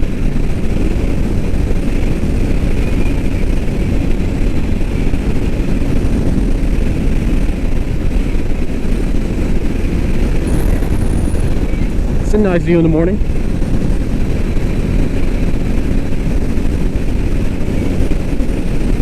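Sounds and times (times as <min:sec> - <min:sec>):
motorcycle engine at full throttle: 0:00.0 - 0:19.0
wind noise: 0:00.0 - 0:19.0.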